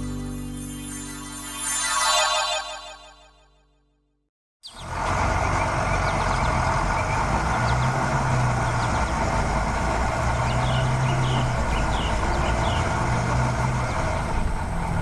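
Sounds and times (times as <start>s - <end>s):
heavy truck engine running: 4.8s - 15.0s.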